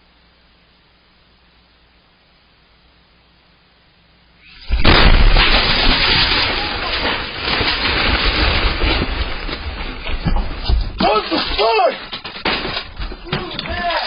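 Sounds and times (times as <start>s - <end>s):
rumble and crackle: 0.0s - 14.0s
explosion blast: 4.6s - 9.4s.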